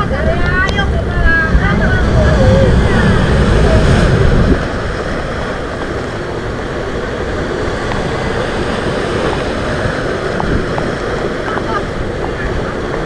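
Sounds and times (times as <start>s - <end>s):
rough sea washing and surging: 0.0s - 13.0s
wind buffeting microphone: 0.0s - 13.0s.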